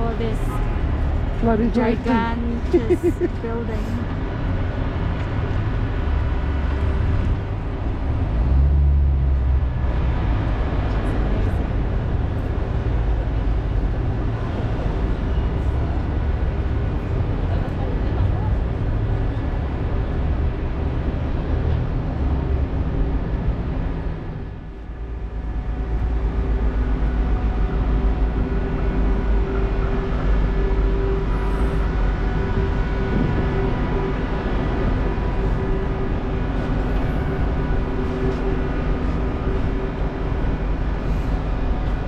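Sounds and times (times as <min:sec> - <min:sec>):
low rumble of vehicles: 0:00.0 - 0:42.0
steady hum: 0:24.4 - 0:42.0.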